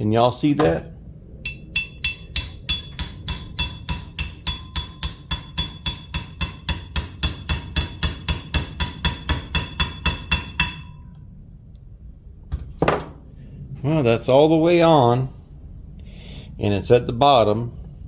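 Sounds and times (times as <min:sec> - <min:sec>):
hammer tapping on metal bolt: 0:01.5 - 0:10.9.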